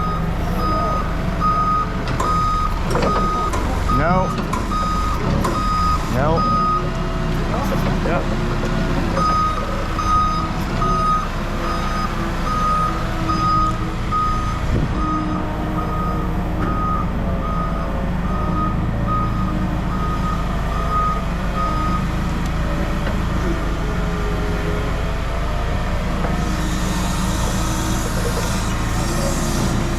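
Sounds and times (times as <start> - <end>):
reversing alarm beeping: 0.0 - 7.0, 9.1 - 22.4
engine rumble: 0.0 - 29.9.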